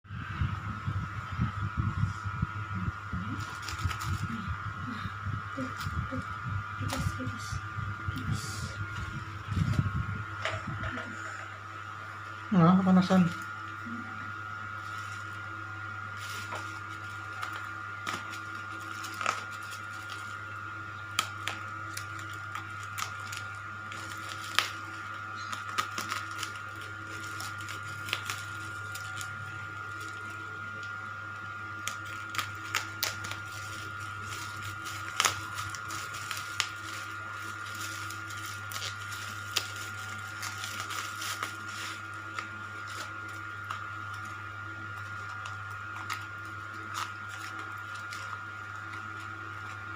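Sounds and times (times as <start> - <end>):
electrical hum: 0.0 - 49.9
thin high whine: 0.1 - 49.9.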